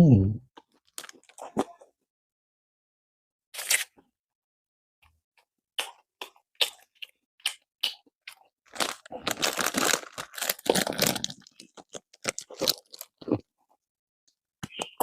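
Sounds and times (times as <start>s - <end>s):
crusty bread crunching: 0.6s - 1.7s, 8.3s - 13.4s.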